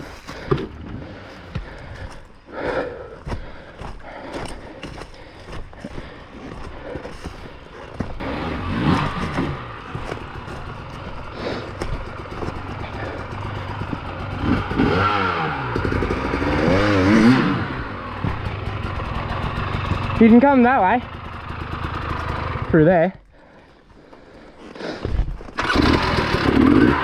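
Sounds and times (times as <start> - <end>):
clattering and scraping over rocks: 0.0 - 2.2, 8.8 - 14.6, 24.0 - 25.6
dirt bike engine revving: 7.9 - 23.0, 25.6 - 27.0.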